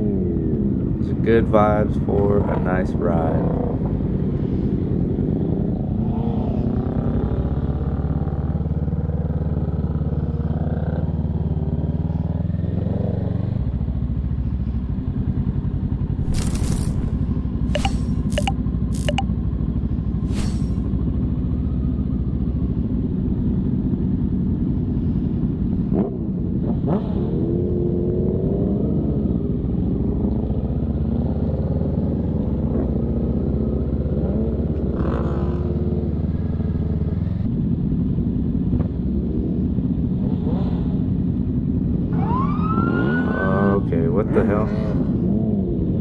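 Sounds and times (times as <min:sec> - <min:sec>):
motorcycle engines revving: 0:00.0 - 0:12.0, 0:25.9 - 0:37.5, 0:39.0 - 0:45.8
sharp clicks: 0:17.8 - 0:19.2.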